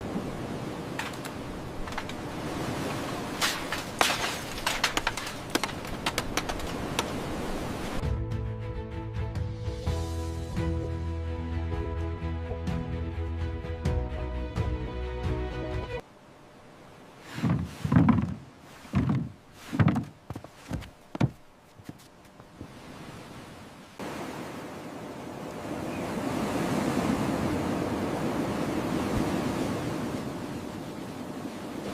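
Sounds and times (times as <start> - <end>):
ocean waves: 0.0 - 8.0, 16.0 - 21.6, 22.2 - 31.9
sharp clicks and knocks: 3.4 - 7.2
music: 8.0 - 16.0.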